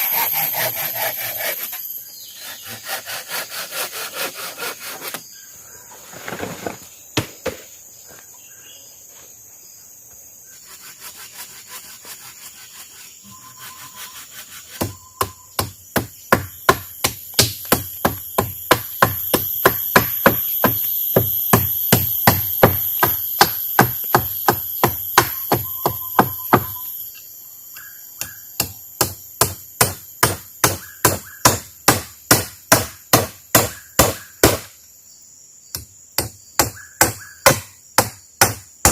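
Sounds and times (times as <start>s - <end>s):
forest insects droning: 0.0s - 38.9s
wood being chopped: 7.2s - 7.6s, 14.7s - 26.8s, 28.2s - 34.7s, 35.8s - 38.9s.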